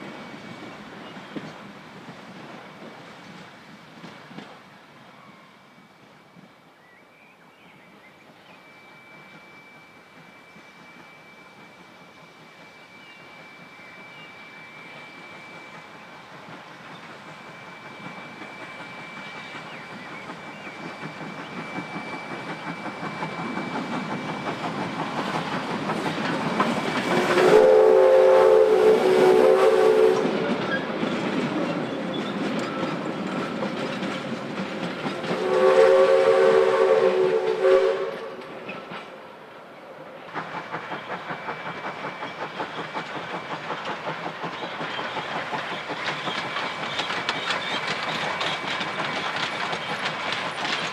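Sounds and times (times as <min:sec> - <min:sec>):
steam locomotive running: 0:00.0 - 0:50.9
steam locomotive whistle: 0:08.6 - 0:33.6, 0:35.2 - 0:39.0
train running quick beat: 0:14.8 - 0:39.1, 0:40.3 - 0:50.9.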